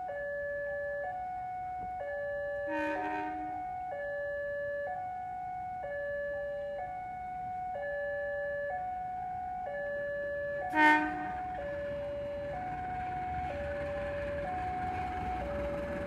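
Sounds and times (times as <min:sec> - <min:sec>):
level crossing alarm two-tone: 0:00.0 - 0:16.0
train rumble approaching: 0:01.0 - 0:04.1, 0:06.9 - 0:16.0
train horn toot: 0:02.6 - 0:03.7, 0:10.7 - 0:11.7.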